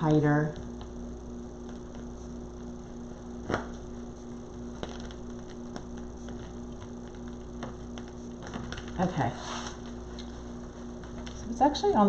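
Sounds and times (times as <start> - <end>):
low electrical hum: 0.0 - 12.0
faint clicks and taps: 4.8 - 9.1, 11.0 - 11.5.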